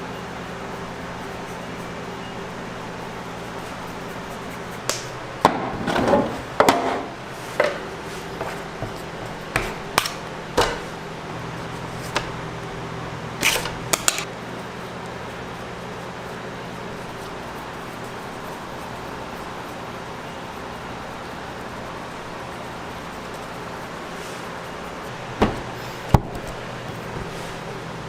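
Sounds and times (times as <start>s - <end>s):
machine hum: 0.0s - 28.0s
rustling and scraping: 1.0s - 11.0s, 11.6s - 12.4s, 20.6s - 27.9s
utensils clattering: 13.4s - 14.3s.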